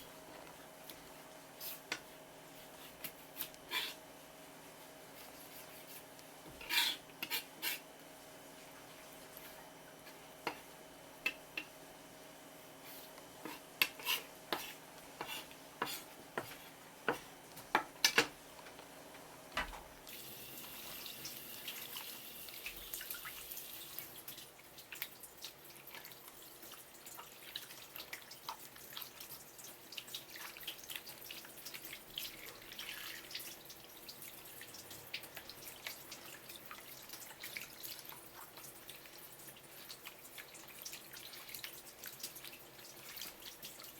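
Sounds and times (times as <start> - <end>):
water dripping and splashing: 20.0 - 43.9.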